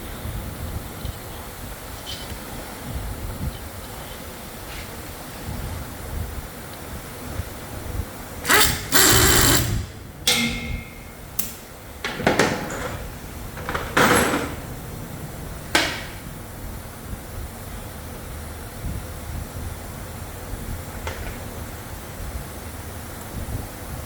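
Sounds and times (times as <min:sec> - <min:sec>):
power tool hissing whirring: 0:08.4 - 0:11.4
sharp metallic clicks: 0:08.4 - 0:11.7
high whine: 0:08.4 - 0:12.0.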